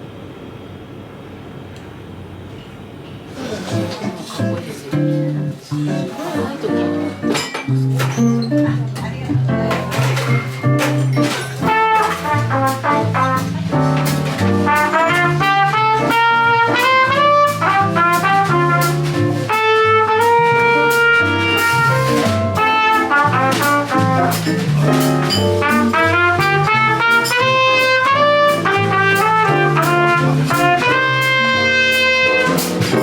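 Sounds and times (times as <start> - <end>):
walking bass: 3.7 - 33.0
drum kit with cymbals: 6.2 - 33.0
horn playing melody: 10.8 - 33.0.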